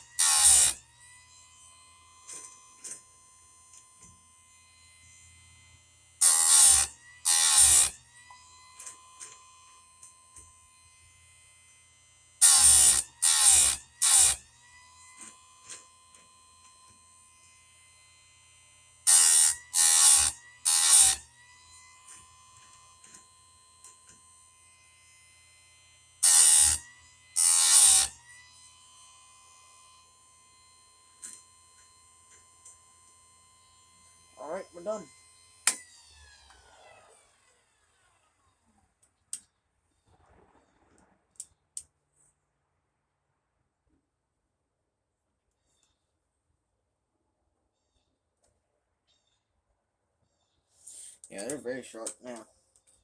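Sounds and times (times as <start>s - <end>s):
grinding wheel cutting chain: 0.0s - 28.9s, 29.6s - 37.2s
sharpener motor whine: 0.0s - 38.7s.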